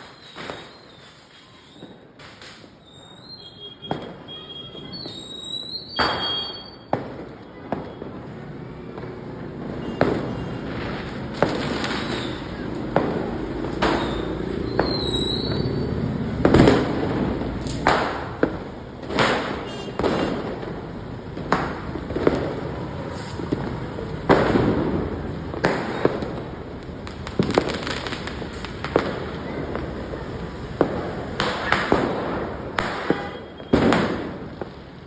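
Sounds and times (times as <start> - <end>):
firecrackers banging: 0.0 - 35.0
short high whistle: 2.9 - 6.9.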